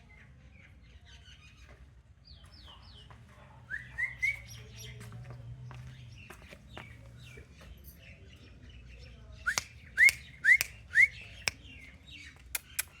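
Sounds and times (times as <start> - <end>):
parrot clicks: 12.5 - 13.0.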